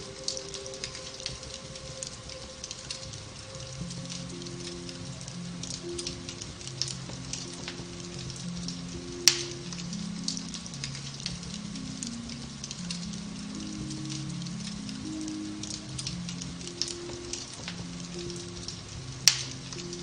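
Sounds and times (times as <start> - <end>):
fire crackling: 0.0 - 20.0
soft slow background music: 0.0 - 20.0.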